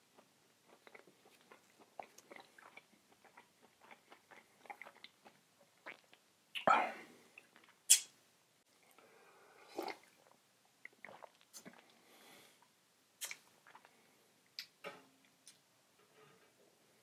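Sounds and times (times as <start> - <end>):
mouth clicks and smacks chewing: 0.1 - 6.7, 13.2 - 14.8.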